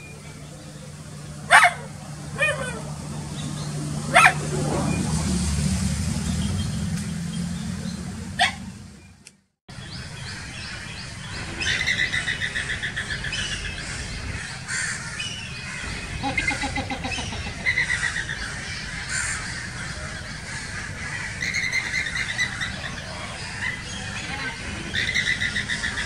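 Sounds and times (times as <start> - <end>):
steady low rumble: 0.0 - 26.0
flamingo chattering calls: 10.0 - 26.0.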